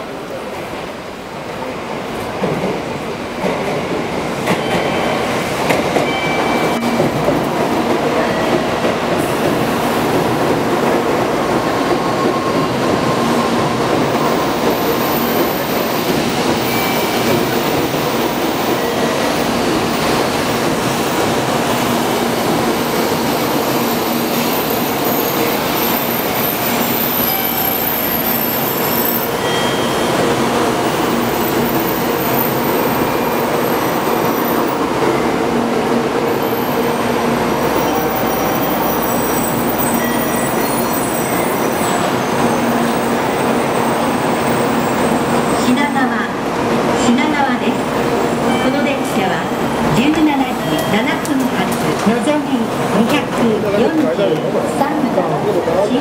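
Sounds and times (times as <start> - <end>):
train cars rushing past: 0.0 - 56.0
high-pitched brake squeal: 14.2 - 17.6, 23.8 - 30.4, 37.8 - 43.0.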